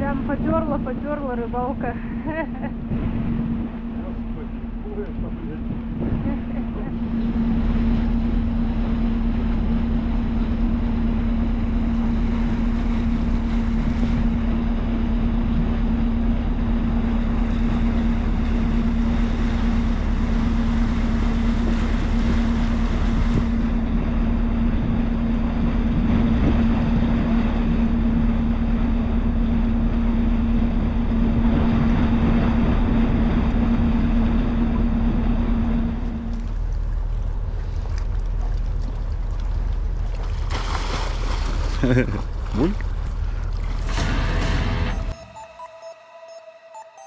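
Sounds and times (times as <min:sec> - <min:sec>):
ship engine humming: 0:00.0 - 0:40.2
propeller churning water: 0:00.0 - 0:45.2
wind noise on microphone: 0:05.2 - 0:09.0, 0:09.6 - 0:36.1.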